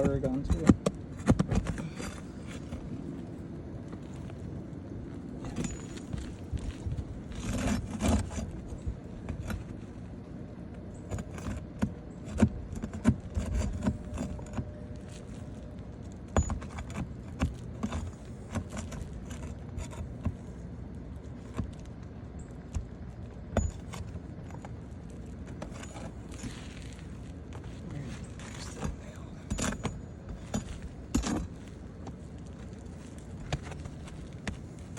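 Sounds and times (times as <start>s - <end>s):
metal tools scraping shingles: 5.4s - 9.8s, 11.0s - 20.6s, 23.5s - 34.9s.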